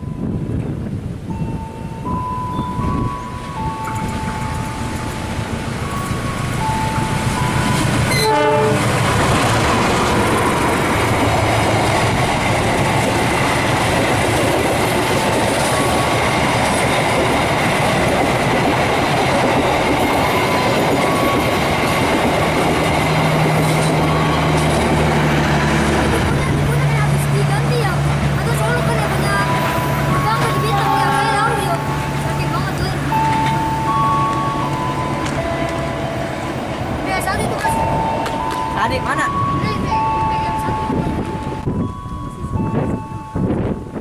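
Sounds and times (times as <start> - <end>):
train wheels rushing on rails: 0.0 - 44.0
held tones stepping between pitches: 19.8 - 43.4.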